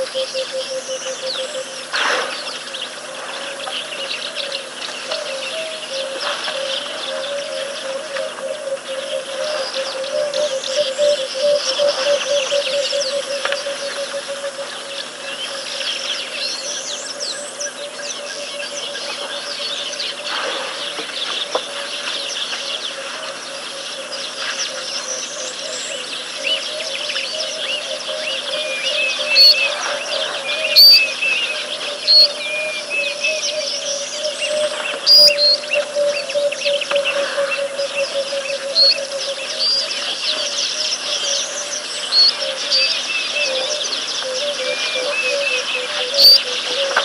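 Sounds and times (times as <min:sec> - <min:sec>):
wild birds chirping and whistling: 0:00.0 - 0:47.0
low fast-pulsing bird call: 0:29.2 - 0:29.8, 0:30.5 - 0:31.2, 0:32.0 - 0:32.4, 0:35.1 - 0:35.7, 0:46.1 - 0:46.4.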